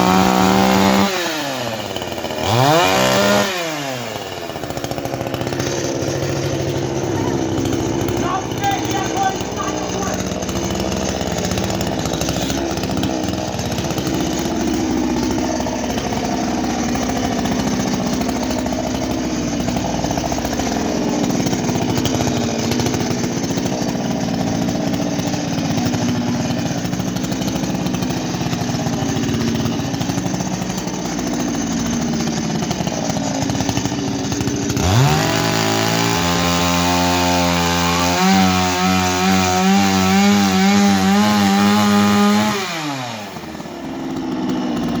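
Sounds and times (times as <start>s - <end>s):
chainsaw engine running: 0.0s - 45.0s.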